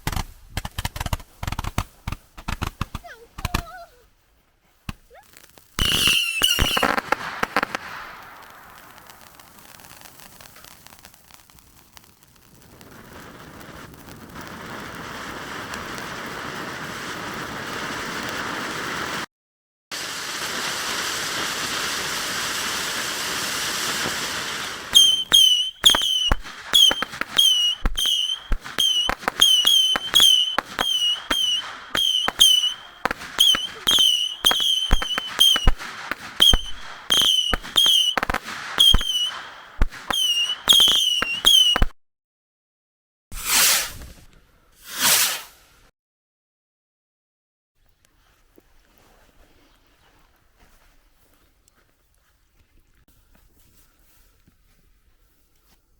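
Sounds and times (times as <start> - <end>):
firework cracks with whistling chirps: 4.8 - 19.3, 19.9 - 42.0, 43.3 - 44.0, 44.8 - 45.7
fireworks spraying hiss: 4.8 - 19.3, 19.9 - 41.9, 43.3 - 45.9.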